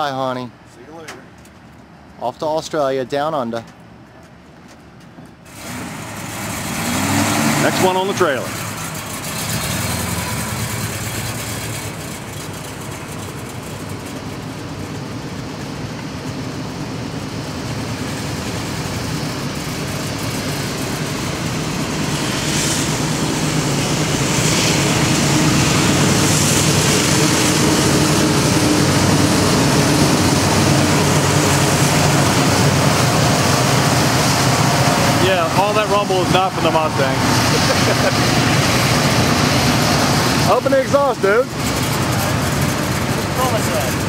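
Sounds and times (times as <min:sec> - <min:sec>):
diesel freight train passing: 0:04.8 - 0:44.0
car engine running: 0:05.5 - 0:44.0.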